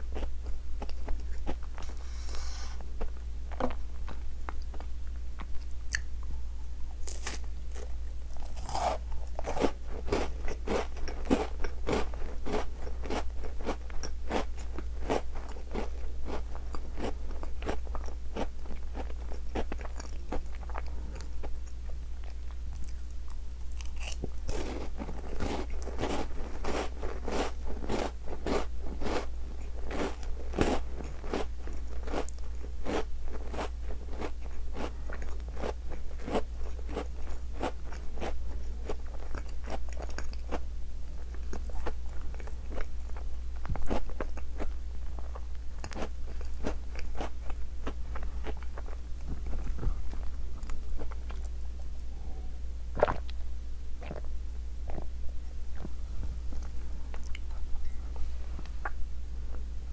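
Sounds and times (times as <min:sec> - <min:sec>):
biscuit crunching: 0:07.0 - 0:51.8.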